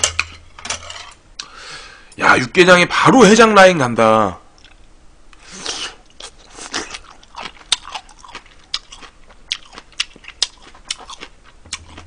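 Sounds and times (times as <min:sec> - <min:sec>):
man slurping: 0:05.4 - 0:07.0
wet chewing with mouth clicks: 0:05.6 - 0:12.0.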